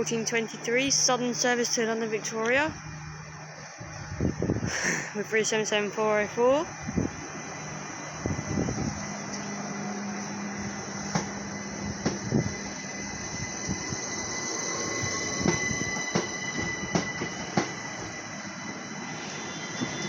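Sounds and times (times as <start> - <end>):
electric train hum and whine: 0.0 - 20.0.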